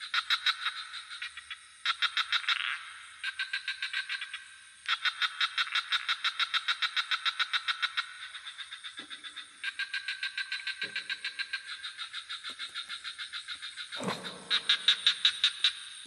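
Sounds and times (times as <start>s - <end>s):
insects pulsing call: 0.0s - 16.0s
low frog croaks: 7.4s - 16.0s.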